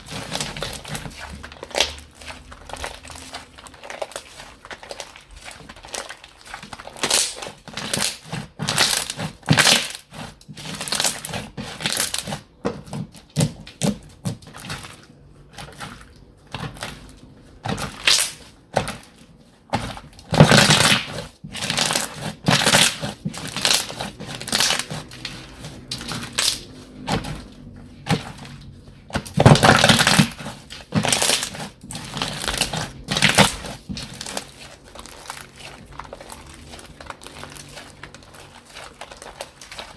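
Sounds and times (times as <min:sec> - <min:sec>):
slime squishing and crackling: 0:00.0 - 0:39.9.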